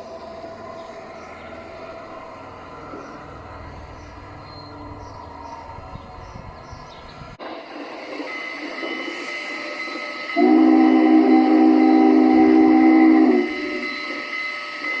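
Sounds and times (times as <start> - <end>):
locomotive running sound: 0.0 - 15.0
model train chord horn: 8.3 - 15.0.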